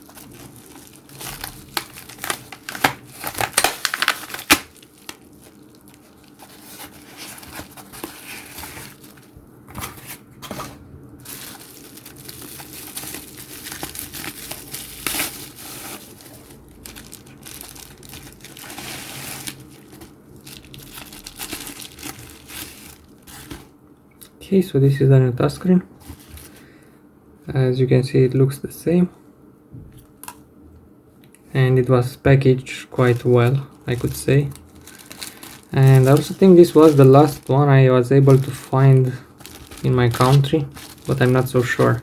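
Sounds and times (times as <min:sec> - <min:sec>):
packaging crinkling and tearing: 0:00.0 - 0:10.1, 0:11.2 - 0:23.7, 0:33.0 - 0:42.0.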